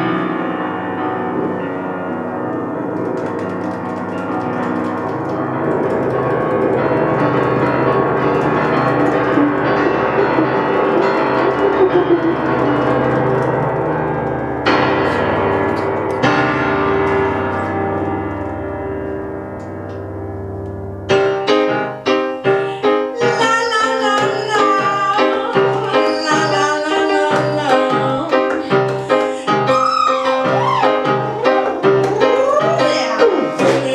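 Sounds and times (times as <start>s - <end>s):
repeated piano-like notes: 0.0s - 33.9s
live band music with keyboards: 9.0s - 13.4s, 21.1s - 33.9s.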